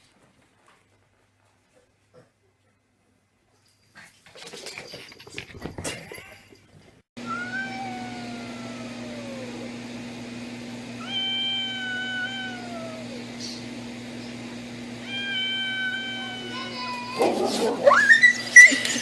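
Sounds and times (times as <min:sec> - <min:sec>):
cat meowing: 0:07.3 - 0:09.7, 0:11.0 - 0:13.2, 0:15.0 - 0:17.3.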